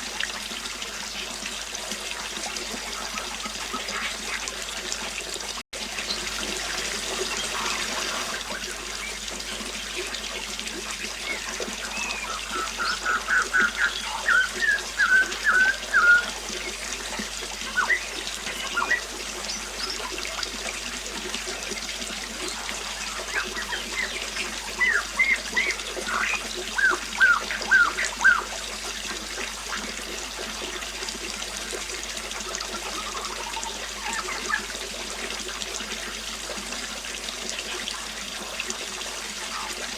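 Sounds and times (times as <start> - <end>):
water trickling: 0.0 - 39.9
birds chirping: 10.9 - 20.2, 22.5 - 28.6, 32.8 - 34.7.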